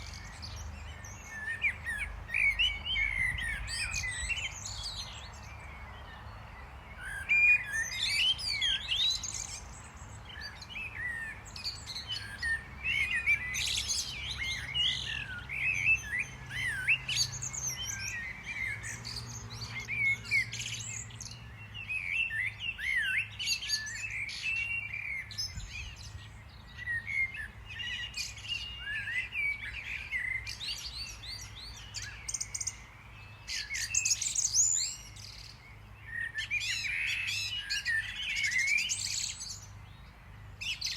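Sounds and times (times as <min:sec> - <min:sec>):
songbirds chirping and twittering: 0:00.0 - 0:40.9.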